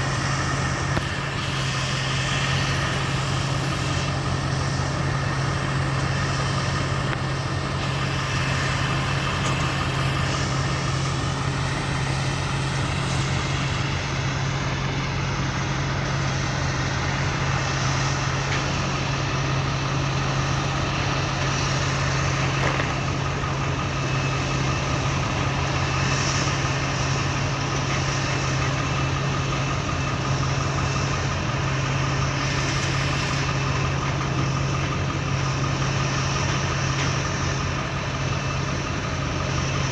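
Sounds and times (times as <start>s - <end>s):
farm machinery engine droning: 0.0s - 39.9s.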